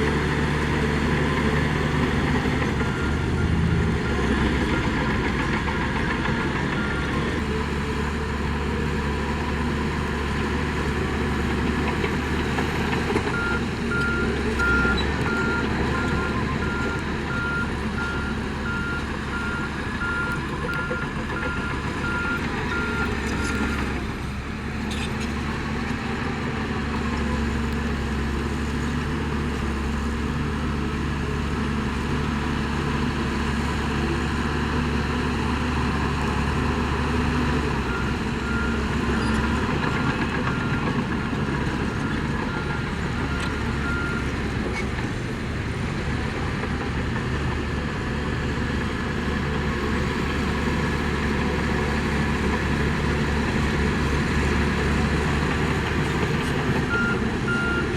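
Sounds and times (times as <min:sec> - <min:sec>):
heavy diesel machinery running: 0:00.0 - 0:57.9
reversing alarm beeping: 0:13.3 - 0:23.7, 0:56.9 - 0:57.9.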